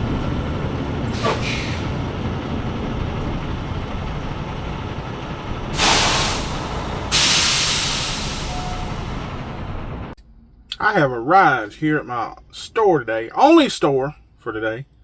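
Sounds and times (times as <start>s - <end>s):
diesel engine idling: 0.0s - 10.2s
air brakes hissing: 1.1s - 2.1s, 5.7s - 9.5s.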